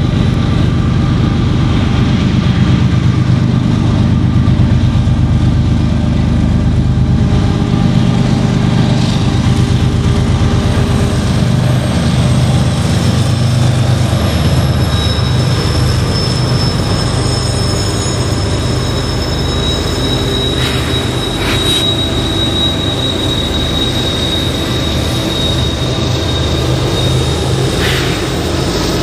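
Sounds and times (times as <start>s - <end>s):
diesel locomotives droning: 0.0s - 29.0s
high-pitched wheel squeal: 10.8s - 29.0s.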